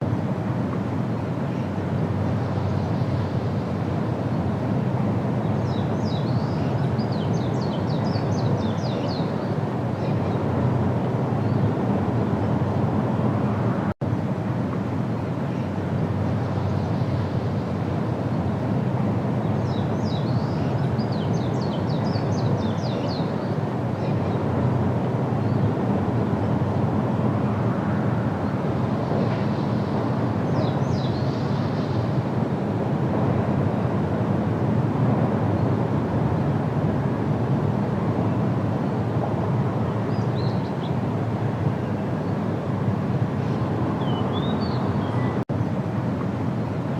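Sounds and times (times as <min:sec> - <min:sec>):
low outdoor rumble: 0:00.0 - 0:46.9
songbird singing: 0:01.3 - 0:12.8, 0:15.3 - 0:32.6, 0:39.7 - 0:42.5, 0:43.3 - 0:45.8.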